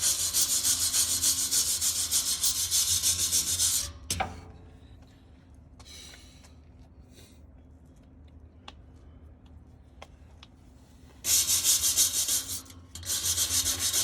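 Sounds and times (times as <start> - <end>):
sanding a metal pipe: 0.0 - 4.0, 11.3 - 14.0.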